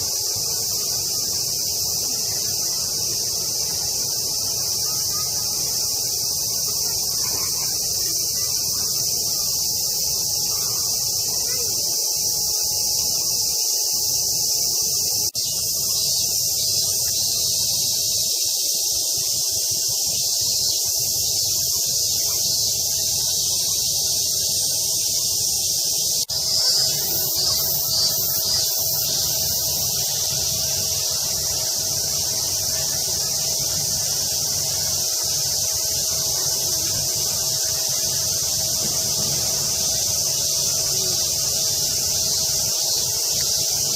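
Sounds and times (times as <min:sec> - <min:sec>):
cicadas chorus: 0:00.0 - 0:43.9
pulsing insect call: 0:00.0 - 0:43.9.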